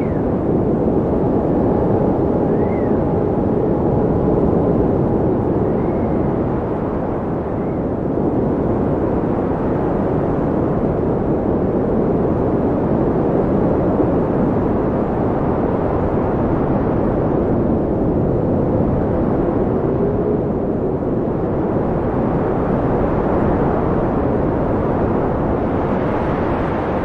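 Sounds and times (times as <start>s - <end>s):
faint whistling tones: 0.0s - 0.4s, 2.4s - 3.1s
low rushing wind: 0.0s - 27.0s.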